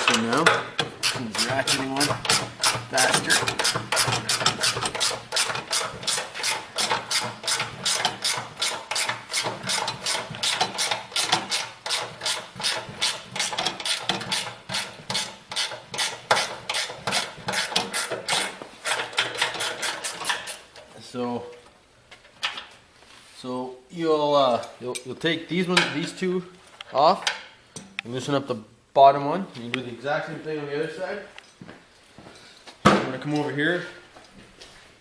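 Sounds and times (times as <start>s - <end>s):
ratcheting wrench clicking: 0.0s - 20.6s.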